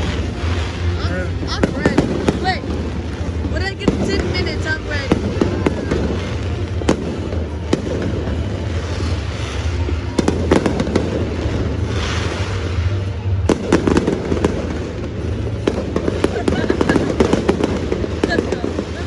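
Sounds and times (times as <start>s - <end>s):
firework bangs: 0.0s - 19.0s
firework crackling: 0.0s - 19.0s.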